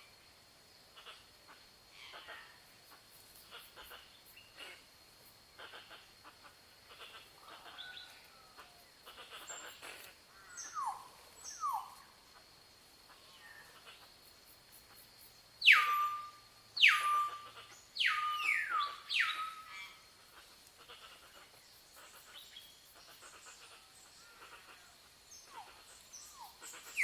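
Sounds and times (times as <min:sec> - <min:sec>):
bird calls and chirps: 0:07.0 - 0:12.1, 0:15.6 - 0:27.0.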